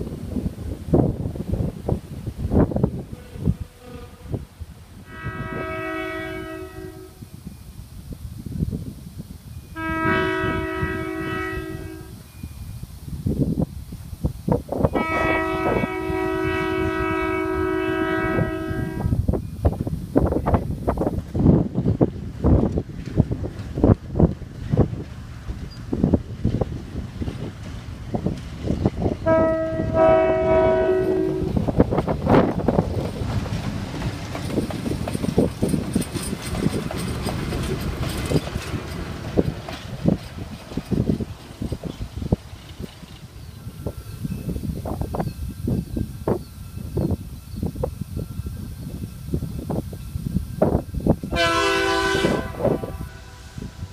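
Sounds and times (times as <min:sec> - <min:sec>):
train rumbling past: 0:00.0 - 0:53.9
locomotive air horn chord: 0:05.1 - 0:07.3, 0:09.8 - 0:12.2, 0:14.9 - 0:19.2, 0:29.2 - 0:31.6, 0:51.3 - 0:53.9
train knocks and clatter: 0:14.3 - 0:53.9
low rumble and knocking: 0:31.4 - 0:43.2.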